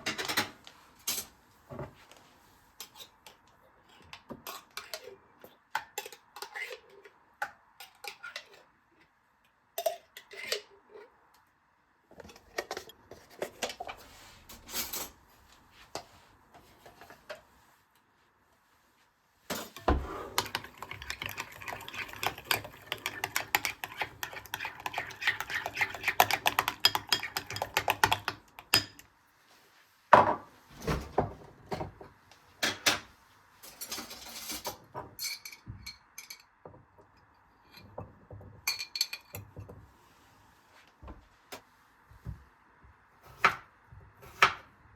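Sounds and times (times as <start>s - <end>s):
utensils and dishes clattering: 0.0s - 1.3s, 19.5s - 29.0s, 33.6s - 36.6s.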